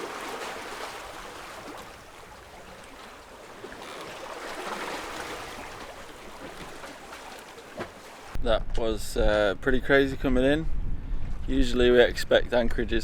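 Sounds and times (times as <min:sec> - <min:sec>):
water rushing along boat hull: 0:00.0 - 0:08.4.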